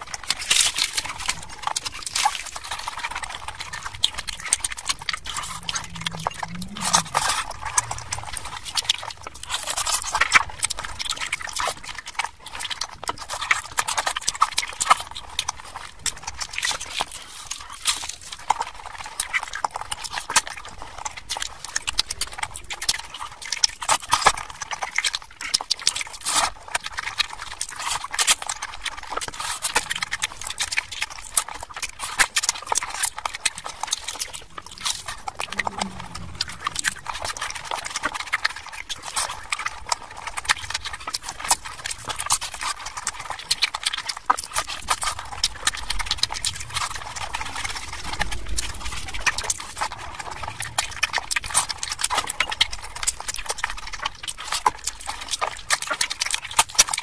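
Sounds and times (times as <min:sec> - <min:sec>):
wet chewing: 0:00.0 - 0:57.0
lip smacking: 0:01.7 - 0:09.8, 0:33.4 - 0:47.3
mouth clicks: 0:03.8 - 0:08.9, 0:34.3 - 0:37.7.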